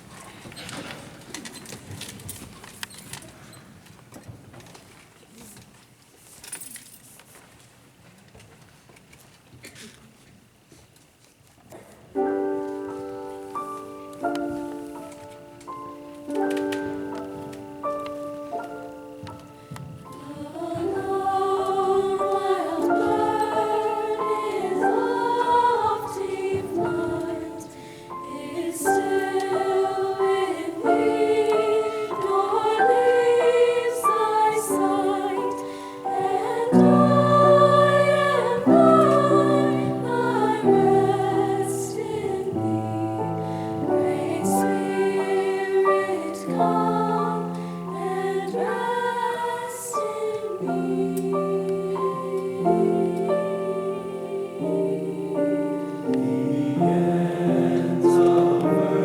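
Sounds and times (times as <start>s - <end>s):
choir singing: 12.9s - 59.0s.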